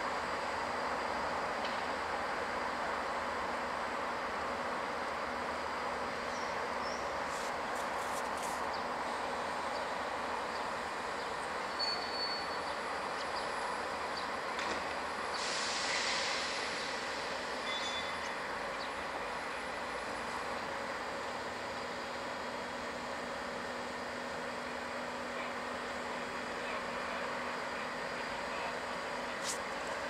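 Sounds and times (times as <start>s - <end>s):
train running noise: 0.0s - 30.0s
high brake squeals: 11.7s - 12.8s, 17.6s - 18.4s
short air hiss: 15.4s - 17.0s.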